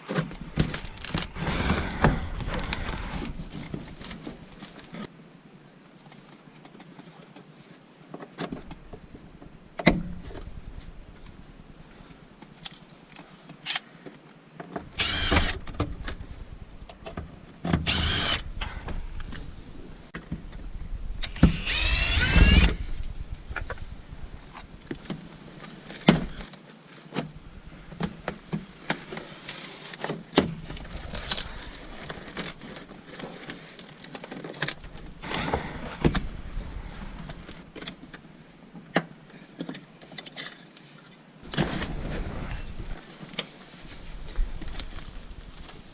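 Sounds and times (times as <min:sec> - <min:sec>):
small electric motor whirring: 0:15.0 - 0:15.7, 0:17.8 - 0:18.7, 0:21.2 - 0:23.1.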